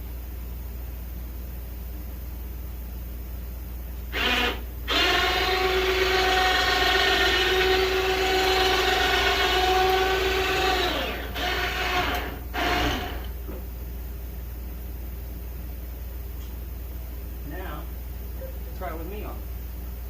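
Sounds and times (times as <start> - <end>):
electric winch motor whining: 4.1 - 13.4.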